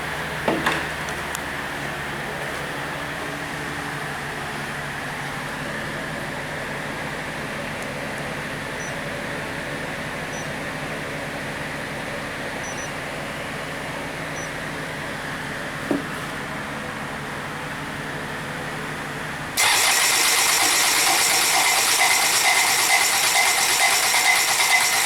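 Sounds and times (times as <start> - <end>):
diesel engine idling: 16.5 - 25.0.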